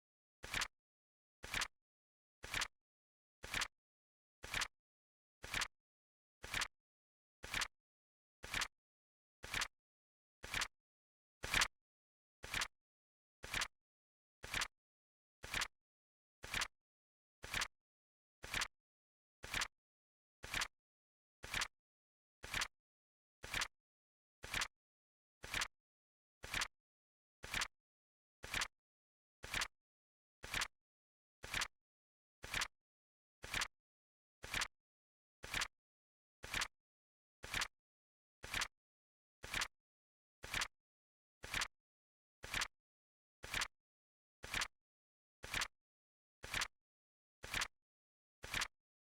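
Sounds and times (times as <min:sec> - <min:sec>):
flip clock timer ticking: 0:32.5 - 0:32.7, 0:33.5 - 0:33.7, 0:36.5 - 0:36.7, 0:37.5 - 0:37.7, 0:39.5 - 0:39.7, 0:40.5 - 0:40.7, 0:41.5 - 0:41.7, 0:42.5 - 0:42.7, 0:43.5 - 0:43.7, 0:44.4 - 0:44.7, 0:45.5 - 0:45.7, 0:46.5 - 0:46.7, 0:47.5 - 0:47.7, 0:48.4 - 0:48.7.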